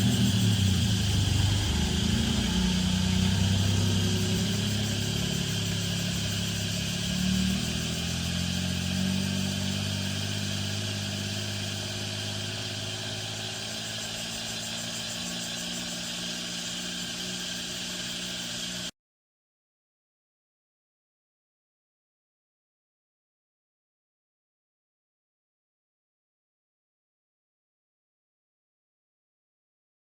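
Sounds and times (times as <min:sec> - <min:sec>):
truck engine running: 0:00.0 - 0:18.9.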